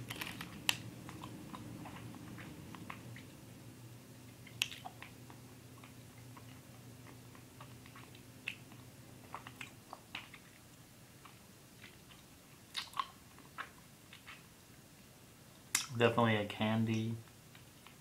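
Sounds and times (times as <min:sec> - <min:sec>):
low steady hum: 0:00.0 - 0:18.0
mouth chewing candy: 0:04.3 - 0:14.5.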